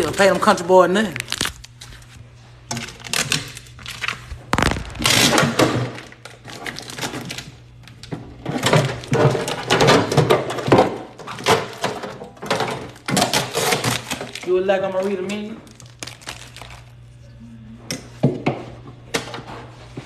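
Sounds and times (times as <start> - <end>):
objects clattering and rattling: 5.0 - 15.8.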